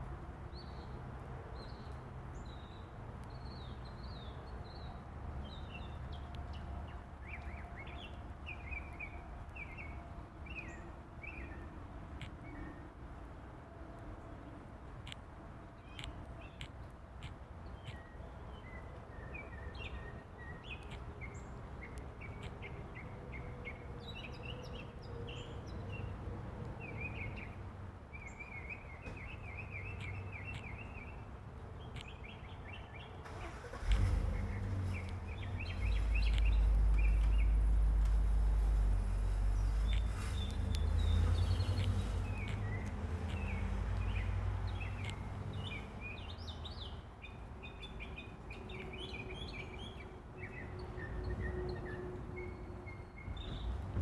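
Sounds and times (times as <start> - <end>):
birds singing: 26.8 - 54.0.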